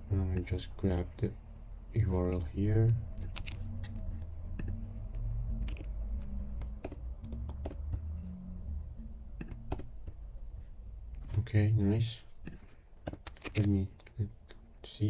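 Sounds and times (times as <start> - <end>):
low steady hum: 0.0 - 15.0
keyboard keys clicking: 5.6 - 6.0, 6.6 - 7.9, 9.4 - 9.9, 13.0 - 14.2.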